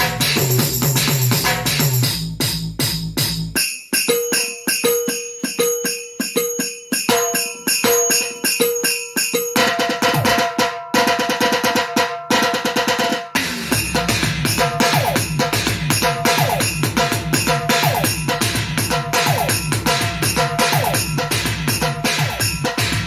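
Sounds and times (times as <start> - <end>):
drum pad beat with heavy bass: 0.0 - 3.6, 13.4 - 23.0
pitched drum pad hits: 13.4 - 23.0.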